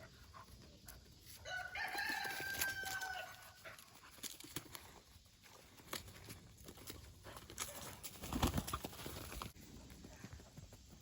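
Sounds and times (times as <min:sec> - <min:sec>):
rooster crowing: 0:01.4 - 0:03.6.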